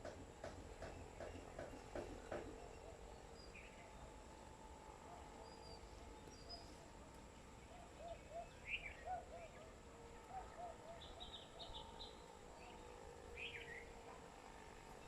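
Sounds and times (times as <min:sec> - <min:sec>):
faint background hum: 0:00.0 - 0:15.0
soft repeated bird calls: 0:07.6 - 0:13.9
small birds chirping: 0:10.5 - 0:13.9.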